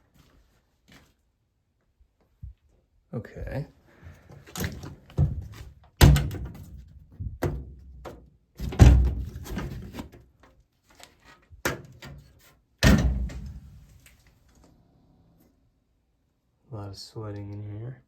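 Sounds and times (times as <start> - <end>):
sheet metal panels thunking: 12.8 - 13.9.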